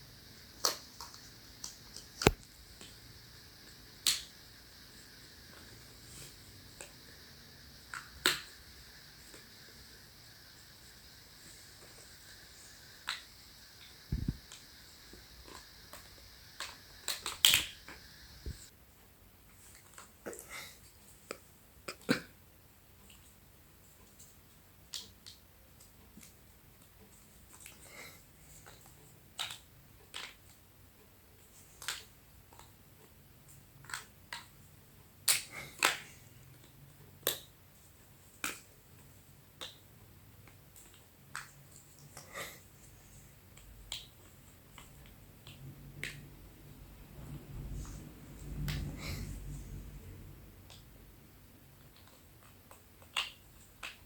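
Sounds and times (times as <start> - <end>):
plastic blocks snapping together: 16.6 - 17.9, 51.9 - 54.0
plastic building blocks clicking: 31.3 - 34.6, 51.7 - 54.0.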